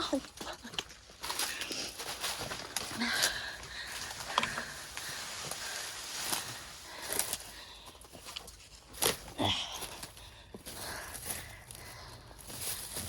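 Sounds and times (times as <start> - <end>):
brush rustling and crackling: 0.1 - 13.0
footsteps through brush: 0.1 - 13.0
twigs snapping: 8.2 - 10.1.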